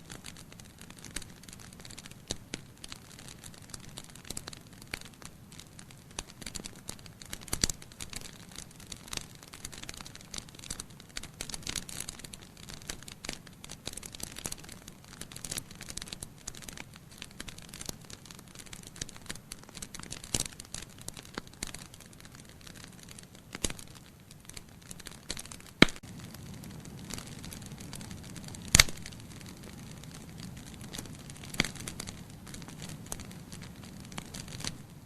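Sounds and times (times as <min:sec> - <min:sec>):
wood fire crackling: 0:00.0 - 0:35.0
sharp loud snap of fire: 0:25.3 - 0:26.1, 0:26.9 - 0:34.8.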